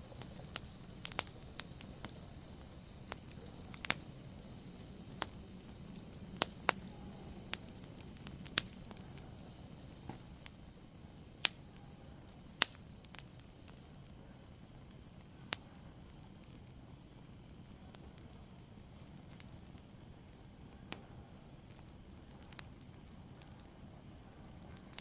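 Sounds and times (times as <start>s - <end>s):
logs popping: 0.0s - 10.6s
low fire hiss: 0.0s - 25.0s
wood fire crackling: 0.0s - 25.0s.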